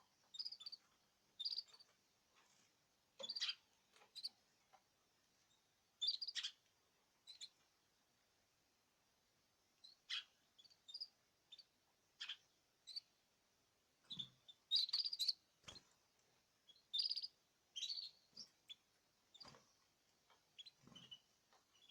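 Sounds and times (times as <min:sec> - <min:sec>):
birds chirping: 0:00.2 - 0:00.8, 0:01.4 - 0:01.9, 0:03.2 - 0:04.4, 0:06.0 - 0:06.6, 0:09.8 - 0:13.1, 0:14.1 - 0:15.9, 0:16.7 - 0:21.9.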